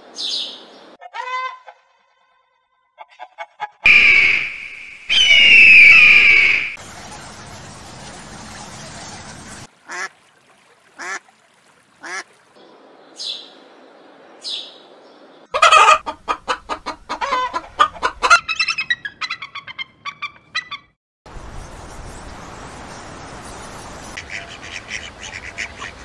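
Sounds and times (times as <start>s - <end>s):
birds calling: 3.9s - 6.8s, 23.9s - 26.0s.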